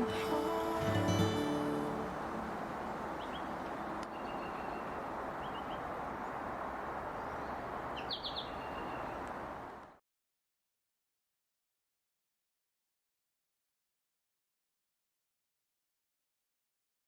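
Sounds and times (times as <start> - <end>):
outdoor background hiss: 0.0 - 10.0
small birds chirping: 2.6 - 9.9.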